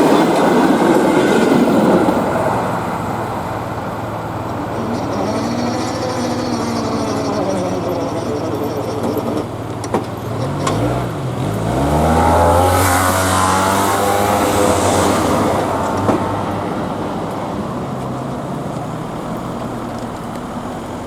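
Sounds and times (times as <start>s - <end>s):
steady traffic noise: 0.0s - 21.0s
vehicle engine accelerating past: 10.2s - 21.0s.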